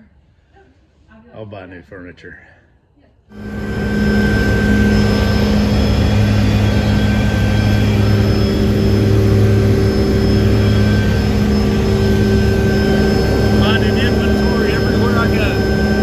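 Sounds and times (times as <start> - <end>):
helicopter engine and rotor: 3.3 - 16.0.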